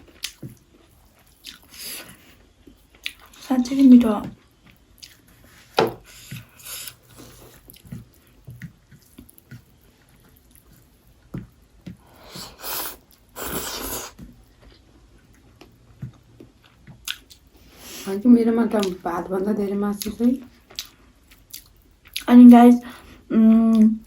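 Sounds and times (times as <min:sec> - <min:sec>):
wet chewing clicks: 0:00.1 - 0:03.4, 0:04.3 - 0:05.4, 0:14.6 - 0:17.5, 0:19.9 - 0:22.4.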